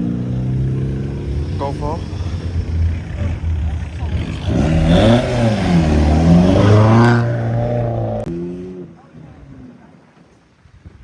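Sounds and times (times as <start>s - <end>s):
car engine revving: 0.0s - 8.9s
engine idling hum: 0.4s - 8.3s.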